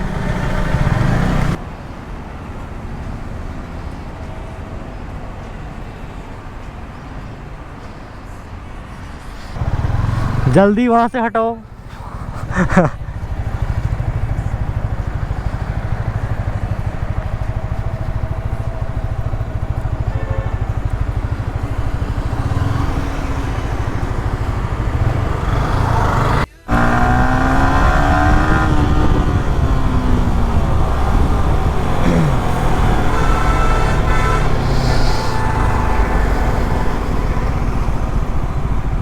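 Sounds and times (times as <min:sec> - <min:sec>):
motorcycle engine running: 0:00.0 - 0:01.6, 0:09.6 - 0:10.8, 0:11.6 - 0:39.0.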